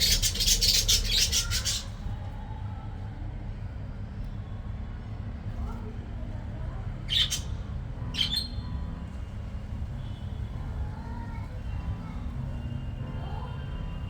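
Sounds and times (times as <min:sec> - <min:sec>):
budgies squawking: 0:00.0 - 0:01.9
faint bird chirping: 0:00.0 - 0:02.2, 0:07.0 - 0:08.8.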